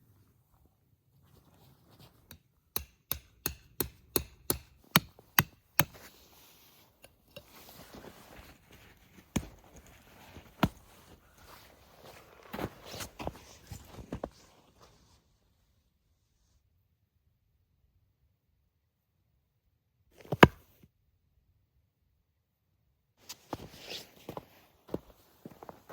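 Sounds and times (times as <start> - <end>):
tent peg being hammered: 2.3 - 6.0.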